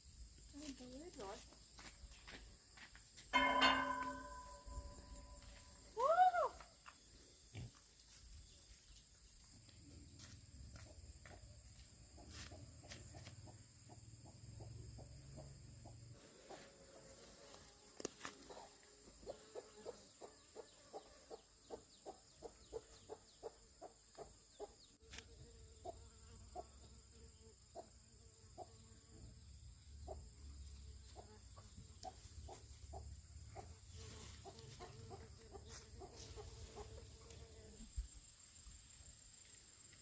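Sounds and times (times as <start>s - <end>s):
chickens clucking softly: 31.1s - 33.8s.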